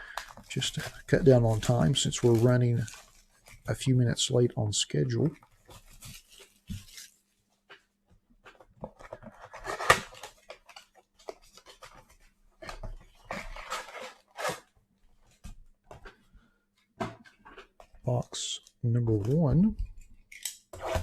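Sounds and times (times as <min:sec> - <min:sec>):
plastic wrap crinkling and tearing: 0:00.0 - 0:04.1, 0:05.2 - 0:07.4.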